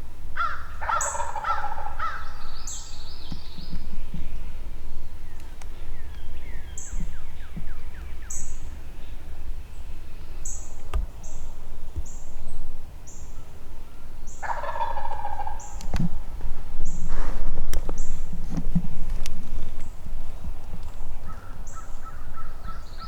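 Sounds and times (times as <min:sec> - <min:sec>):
turkey gobbling: 0:00.4 - 0:02.4, 0:14.0 - 0:16.3.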